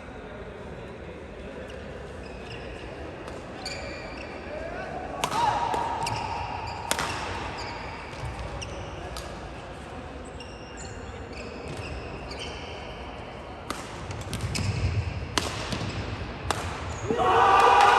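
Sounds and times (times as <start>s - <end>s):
murmur of hall: 0.0s - 17.9s
shoes squeaking on court floor: 1.6s - 4.6s, 5.9s - 9.3s, 10.2s - 13.4s, 14.1s - 15.2s
racket striking shuttlecock: 5.2s - 8.3s, 13.6s - 17.0s.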